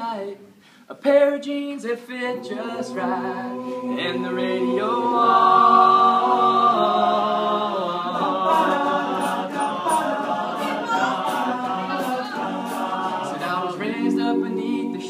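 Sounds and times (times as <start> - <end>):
a cappella group singing: 0.9 - 15.0
sharp hissing beats: 8.5 - 14.0.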